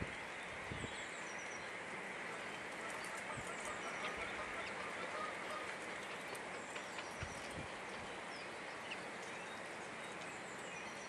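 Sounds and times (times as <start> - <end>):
steady background hiss: 0.0 - 11.0
faint bird chirps: 8.2 - 11.0.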